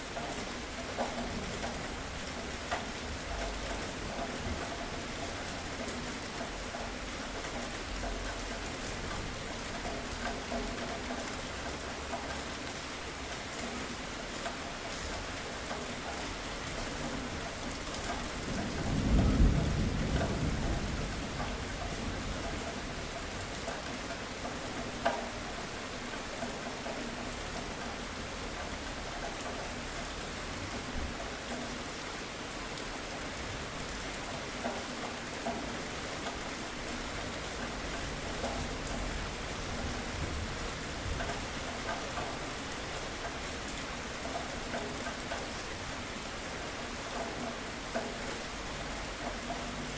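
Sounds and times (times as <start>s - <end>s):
continuous rain: 0.0s - 49.9s
low roll of thunder: 18.3s - 23.1s.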